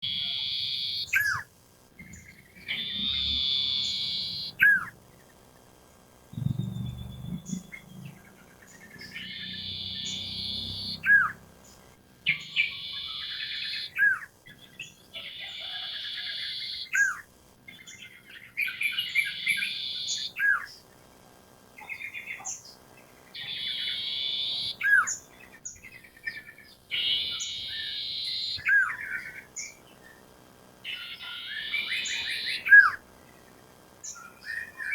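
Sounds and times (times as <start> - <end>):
bird buzzy chattering song: 0.0 - 5.5, 6.3 - 20.9, 21.8 - 34.9
bird sharp hooked whistle: 2.7 - 4.9.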